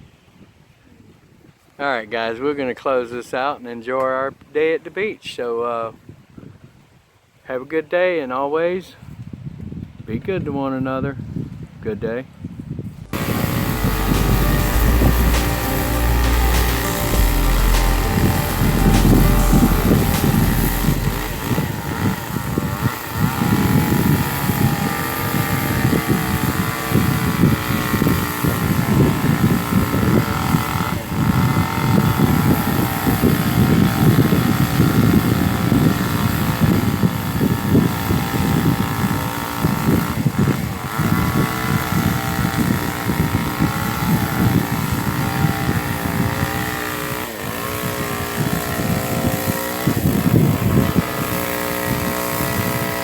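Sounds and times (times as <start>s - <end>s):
wind noise: 6.0s - 7.1s, 9.0s - 15.9s, 17.0s - 46.8s, 47.9s - 53.0s
small engine running: 13.1s - 53.0s.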